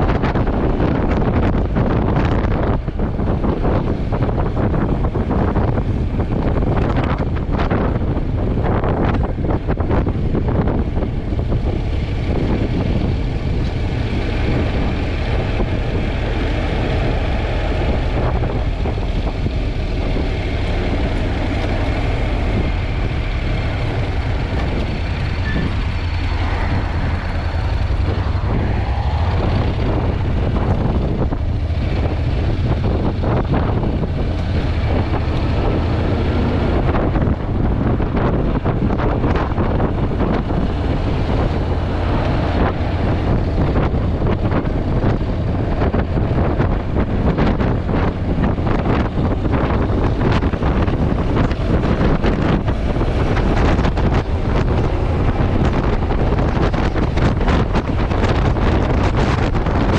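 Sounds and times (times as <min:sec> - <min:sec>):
motorcycle and road noise: 0:00.0 - 0:59.9
wind buffeting microphone: 0:00.0 - 0:59.9.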